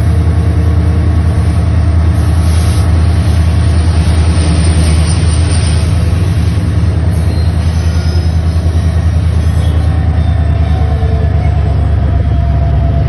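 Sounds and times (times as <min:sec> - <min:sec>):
train wheels rumbling on rail: 0:00.0 - 0:13.0
faint thin squeal: 0:04.0 - 0:12.4.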